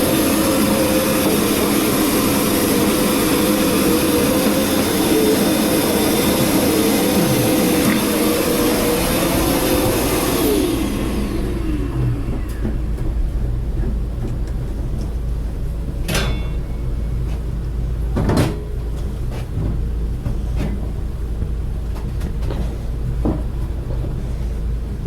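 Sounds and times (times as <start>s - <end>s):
steady low rumble: 1.2s - 16.1s.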